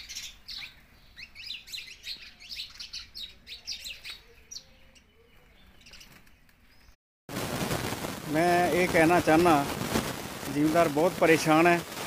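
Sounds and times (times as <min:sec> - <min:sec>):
small birds chirping: 0:00.0 - 0:07.0.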